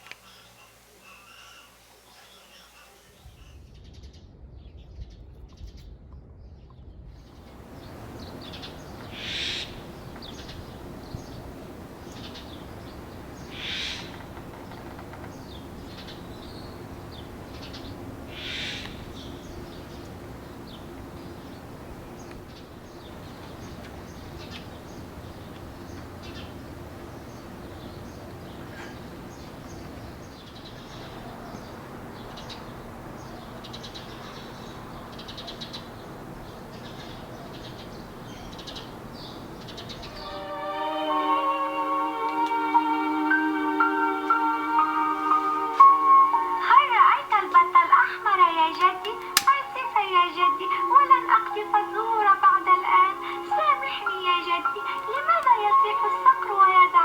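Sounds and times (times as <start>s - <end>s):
harsh bird calls: 0.0s - 3.7s, 7.3s - 57.0s
steady background hiss: 0.0s - 3.9s, 7.3s - 57.0s
small bird chirps: 7.8s - 36.0s.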